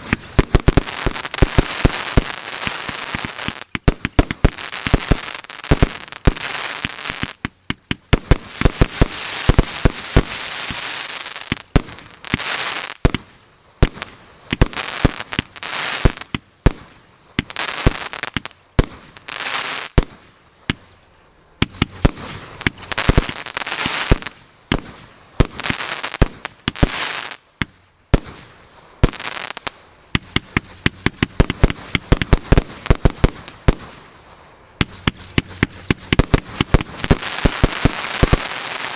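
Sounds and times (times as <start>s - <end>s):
fireworks hiss: 0.0s - 38.9s
fireworks shots and bursts: 0.0s - 38.9s.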